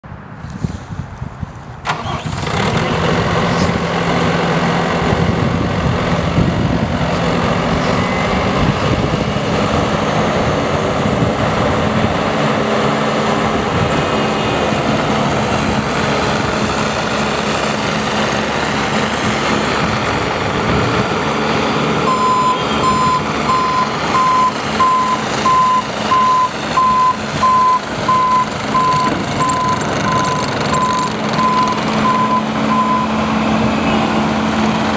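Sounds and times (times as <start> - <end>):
diesel engine running: 1.8 - 34.9
backup alarm beeping: 22.1 - 33.2.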